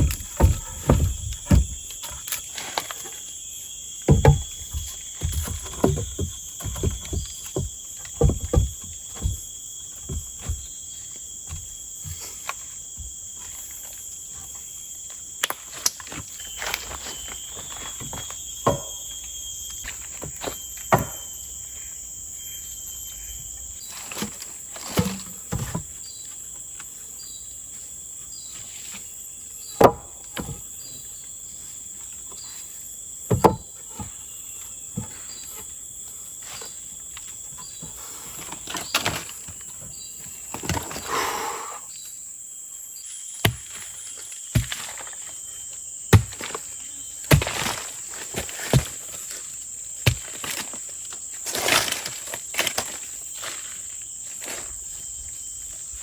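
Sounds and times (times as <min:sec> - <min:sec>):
short knocks and thumps: 0:00.0 - 0:02.2, 0:04.1 - 0:10.8, 0:33.3 - 0:34.1
insects droning: 0:00.0 - 0:56.0.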